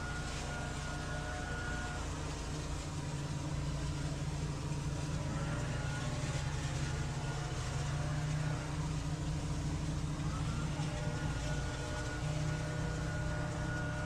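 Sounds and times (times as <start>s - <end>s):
power equipment engine droning: 0.0s - 14.0s.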